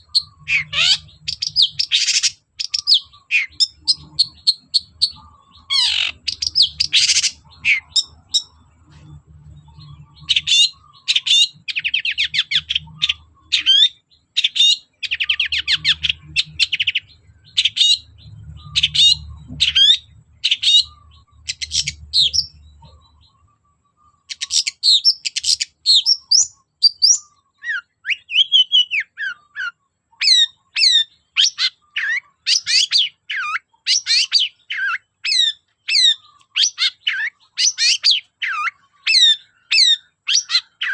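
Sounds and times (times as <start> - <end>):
faint low hum: 0.0 - 14.2.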